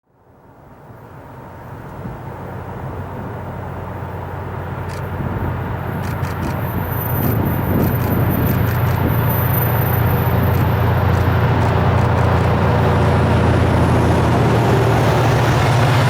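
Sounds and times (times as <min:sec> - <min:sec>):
engine idling: 0:04.0 - 0:16.0
light clicks: 0:04.9 - 0:05.1.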